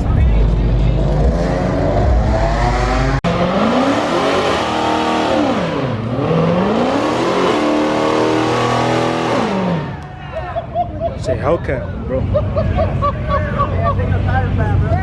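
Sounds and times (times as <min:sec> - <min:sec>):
car engine revving: 0:00.0 - 0:10.1.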